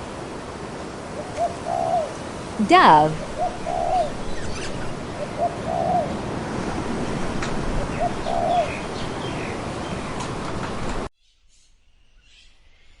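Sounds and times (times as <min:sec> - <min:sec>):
dove cooing: 0:01.2 - 0:02.1, 0:05.2 - 0:06.1, 0:07.8 - 0:09.0.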